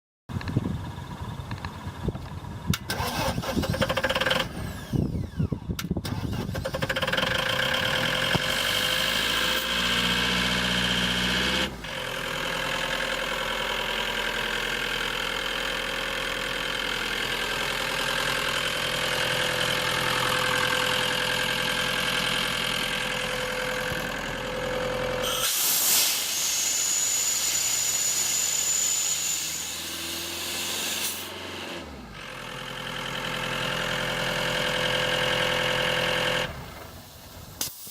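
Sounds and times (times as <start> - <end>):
diesel engine cranking and starting: 0.3 - 37.9
loud hiss: 25.2 - 31.3, 37.0 - 37.9.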